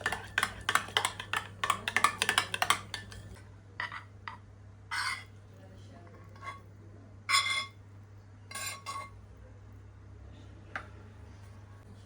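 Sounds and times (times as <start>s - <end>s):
dishes clinking: 7.3s - 7.8s, 8.5s - 9.2s.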